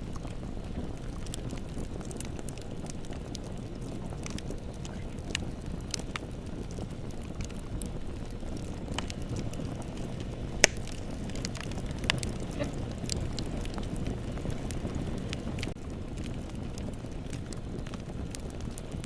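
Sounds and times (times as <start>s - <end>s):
bonfire crackling: 0.0s - 19.0s
loud pop from fire: 10.5s - 14.9s.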